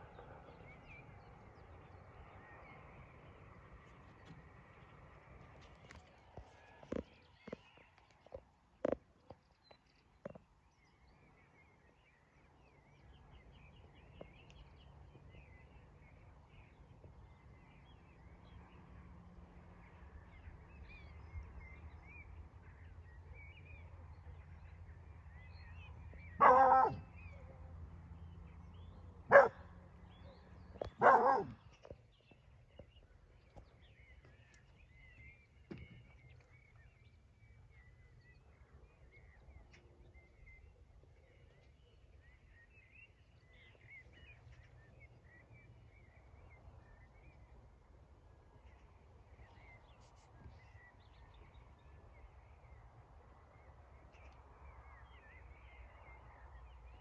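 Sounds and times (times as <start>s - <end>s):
faint birdsong: 0.0s - 57.0s
dog barking: 26.4s - 27.1s, 29.3s - 29.6s, 31.0s - 31.6s.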